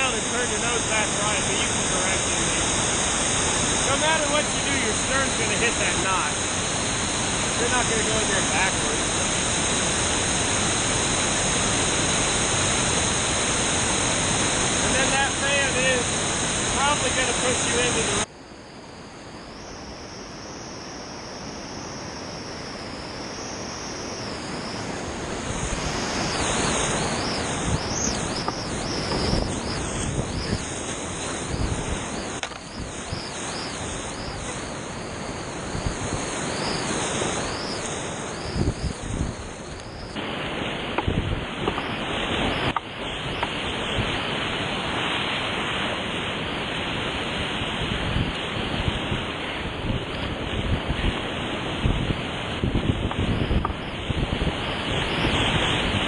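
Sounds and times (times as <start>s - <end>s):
whitewater rushing: 0.0s - 18.3s, 24.0s - 47.5s.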